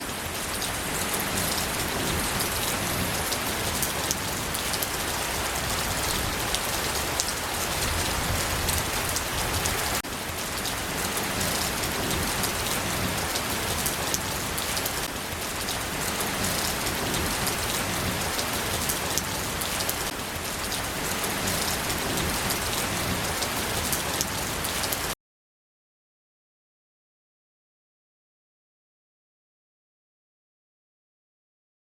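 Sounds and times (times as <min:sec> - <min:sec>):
heavy rain falling: 0:00.0 - 0:25.2.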